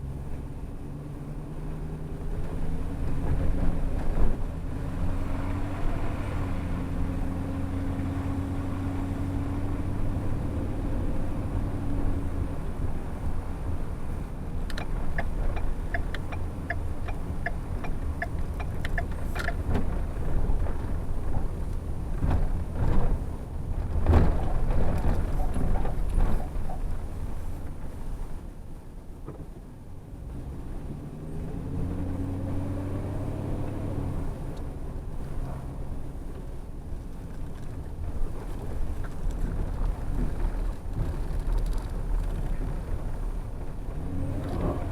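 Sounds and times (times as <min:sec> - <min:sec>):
vehicle engine and tyres rumbling: 0:00.0 - 0:44.9
turn signal ticking: 0:12.7 - 0:20.4.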